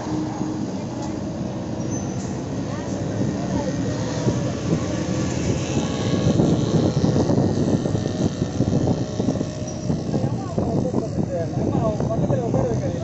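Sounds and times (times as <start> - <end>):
vehicle rumble: 0.0 - 13.0.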